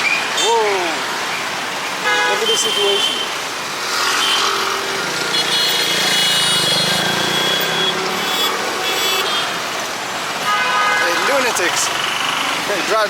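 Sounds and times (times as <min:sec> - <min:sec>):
vehicles passing: 0:00.0 - 0:13.0
vehicle horn: 0:02.0 - 0:03.3, 0:04.1 - 0:04.6, 0:05.3 - 0:09.6, 0:10.4 - 0:11.3.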